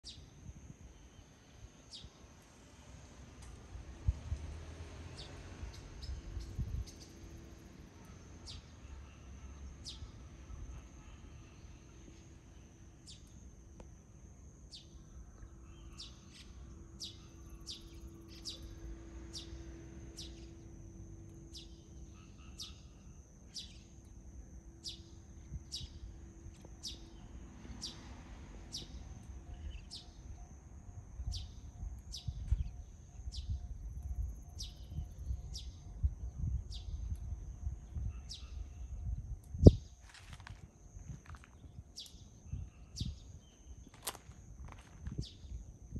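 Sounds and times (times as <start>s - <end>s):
steady high-pitched whine: 6.0s - 45.9s
songbird calls: 14.7s - 20.6s, 21.5s - 24.0s, 31.2s - 40.5s, 41.2s - 45.5s.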